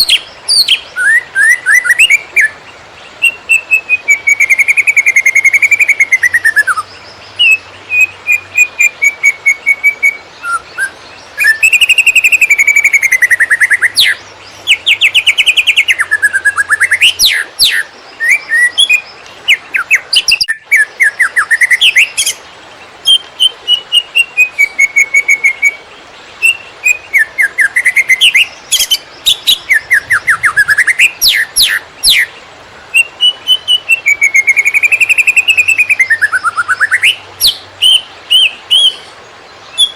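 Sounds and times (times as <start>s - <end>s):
bird singing chattering song: 0.0s - 39.9s.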